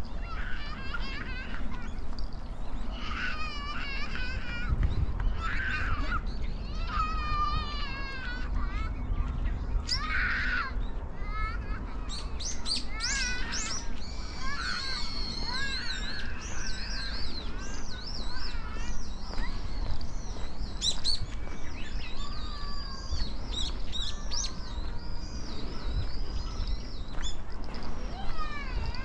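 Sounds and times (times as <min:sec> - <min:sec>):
songbirds chirping and warbling: 0:00.0 - 0:29.0.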